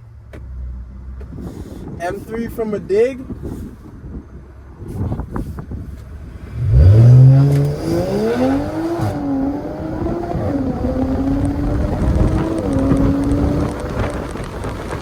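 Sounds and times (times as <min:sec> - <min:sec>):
car engine accelerating hard: 0:06.2 - 0:15.0.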